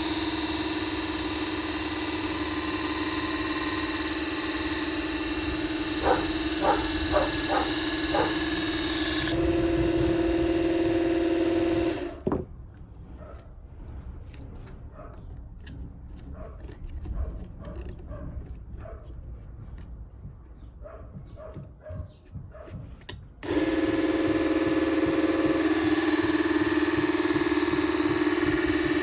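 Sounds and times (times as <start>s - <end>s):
knife sharpener motor whining: 0.0s - 12.3s, 23.4s - 29.0s.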